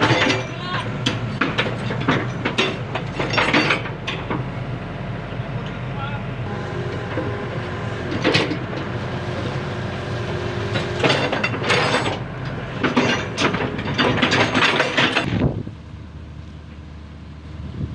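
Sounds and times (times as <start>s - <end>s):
metallic clanking and grinding: 0.0s - 4.6s, 6.5s - 15.4s
heavy machinery engine running: 0.0s - 17.9s.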